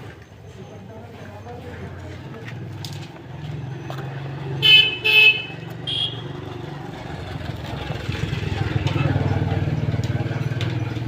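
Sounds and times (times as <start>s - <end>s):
vehicle horn honking: 4.6s - 6.4s.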